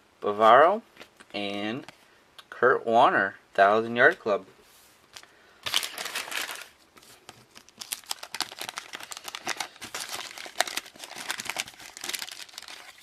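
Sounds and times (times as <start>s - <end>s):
wax paper wrapper crinkling: 5.1s - 13.0s.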